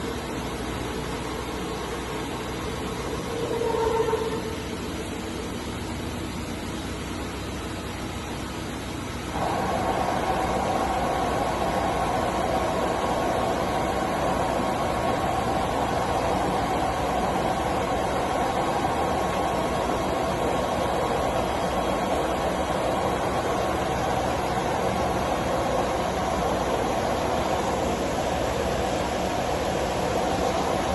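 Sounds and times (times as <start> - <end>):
milling machine running: 0.0 - 8.5, 9.3 - 30.9.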